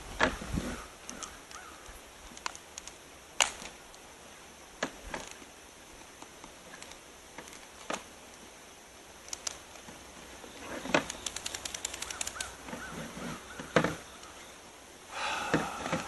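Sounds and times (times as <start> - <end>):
small objects clicking and knocking: 10.8 - 12.5.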